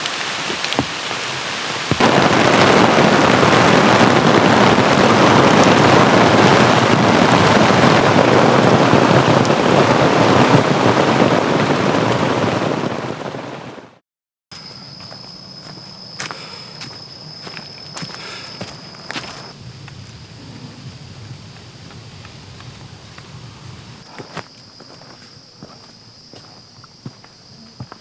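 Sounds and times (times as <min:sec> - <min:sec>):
heavy rain pouring: 0:00.0 - 0:14.0, 0:16.3 - 0:24.1.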